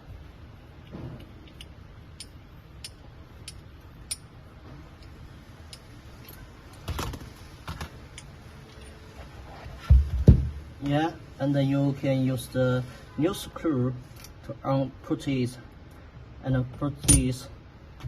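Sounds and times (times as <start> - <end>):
wrench knocking: 1.5 - 4.3.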